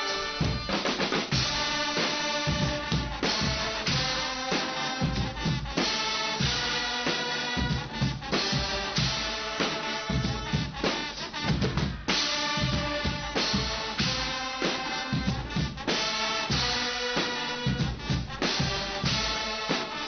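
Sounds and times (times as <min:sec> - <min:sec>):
bass drum and snare beat: 0:00.0 - 0:20.0
brass band: 0:00.0 - 0:20.0
rapid drum roll: 0:00.0 - 0:20.0.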